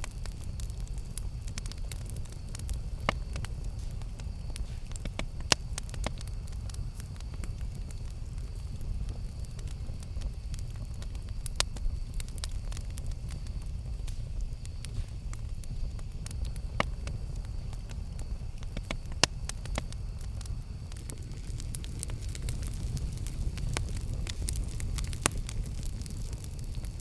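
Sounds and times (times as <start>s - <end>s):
campfire crackling and popping: 0.0s - 27.0s.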